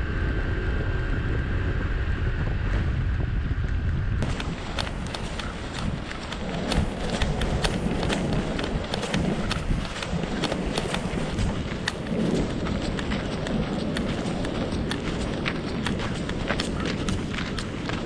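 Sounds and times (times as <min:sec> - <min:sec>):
low rumble of wind: 0:00.0 - 0:18.0
crunching footsteps: 0:04.2 - 0:18.0.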